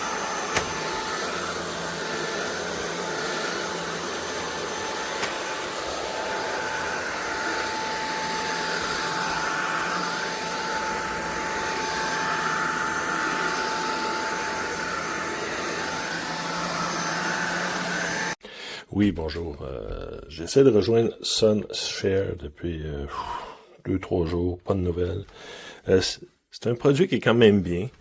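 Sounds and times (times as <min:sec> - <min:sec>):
stick vacuum running: 0:00.0 - 0:18.4.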